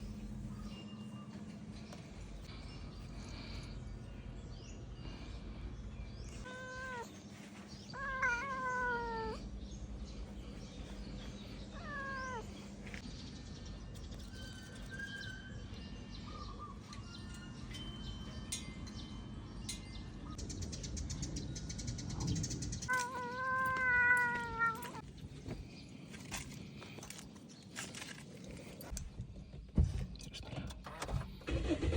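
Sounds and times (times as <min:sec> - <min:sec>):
cat meowing: 0:06.4 - 0:07.2, 0:07.9 - 0:09.4, 0:11.7 - 0:12.5, 0:22.9 - 0:25.0.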